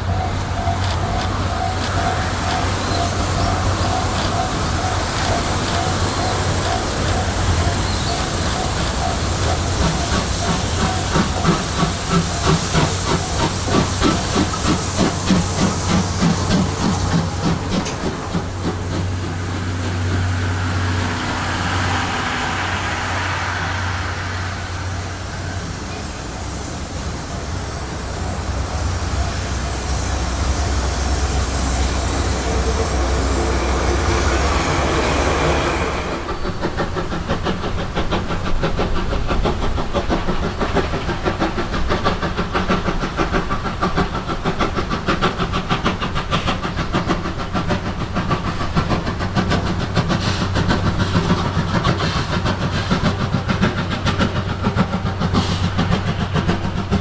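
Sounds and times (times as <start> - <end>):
steam hissing: 0.0 - 57.0
train clattering past: 0.0 - 57.0
low rumble: 19.4 - 25.9.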